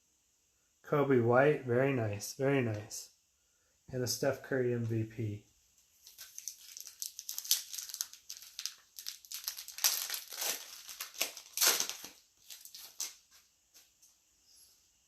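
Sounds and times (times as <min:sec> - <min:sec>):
wrapper crinkling: 0:06.0 - 0:13.4.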